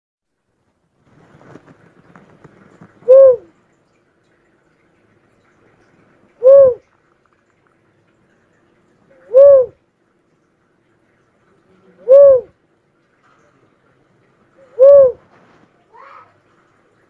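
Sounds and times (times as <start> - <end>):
faint crackling: 0.6 - 3.6
dove hooting call: 3.0 - 3.5, 6.4 - 6.8, 9.1 - 9.8, 12.0 - 12.6, 14.6 - 15.2.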